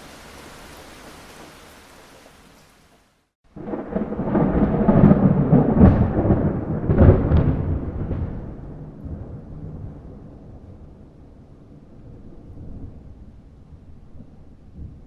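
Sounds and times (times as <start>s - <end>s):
rain hiss: 0.0s - 3.4s
thunder rumbling and crackling: 3.5s - 15.0s.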